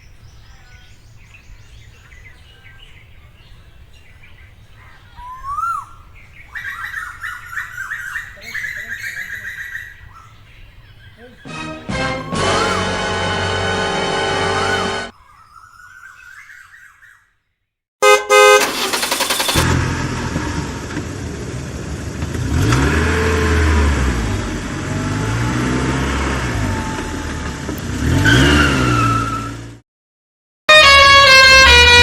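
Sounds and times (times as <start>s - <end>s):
background music: 11.5s - 15.1s
engine revving: 11.5s - 15.1s, 18.6s - 29.8s
vehicle horn: 11.5s - 15.1s, 18.0s - 19.6s, 30.7s - 32.0s.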